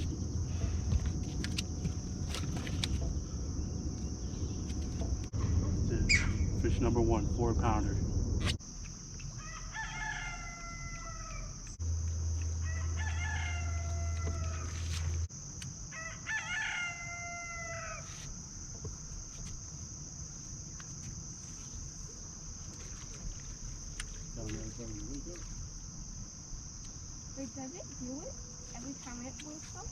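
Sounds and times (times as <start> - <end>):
insects droning: 0.0 - 29.9
rooster crowing: 9.3 - 11.8, 12.5 - 15.3, 15.9 - 18.2.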